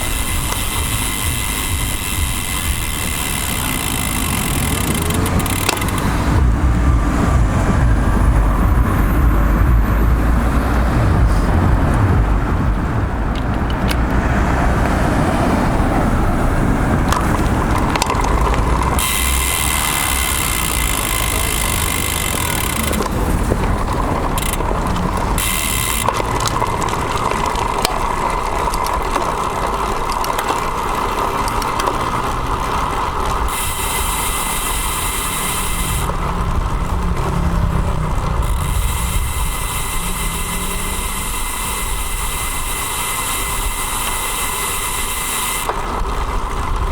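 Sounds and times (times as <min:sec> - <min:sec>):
high buzz: 0:00.0 - 0:13.4, 0:17.0 - 0:27.7, 0:33.4 - 0:45.8
wind rumble on microphone: 0:00.0 - 0:30.2
passing motor vehicles: 0:00.0 - 0:46.9.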